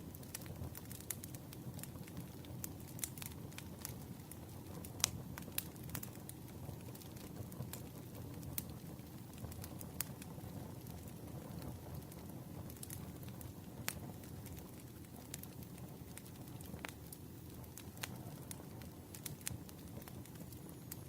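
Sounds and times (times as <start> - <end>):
campfire crackling: 0.0 - 21.0.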